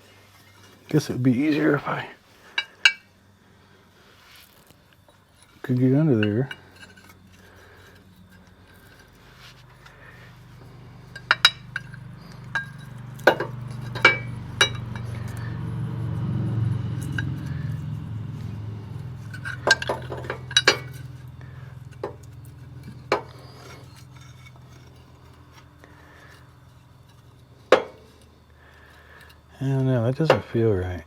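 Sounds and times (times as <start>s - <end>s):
low hum: 0.0s - 29.5s
metal tools clinking on steel: 4.6s - 30.6s.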